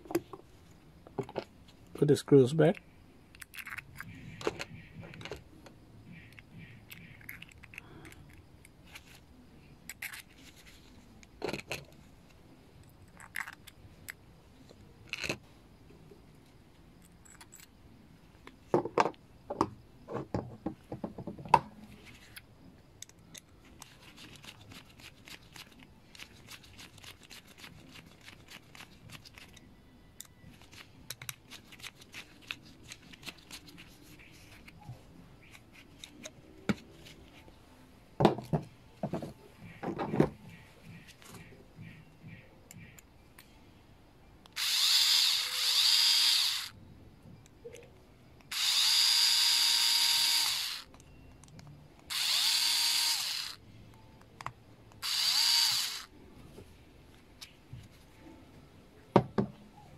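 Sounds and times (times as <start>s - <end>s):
screwdriver fine rapid ticking: 44.6s - 46.7s, 48.5s - 50.9s, 52.1s - 53.6s, 55.0s - 56.1s.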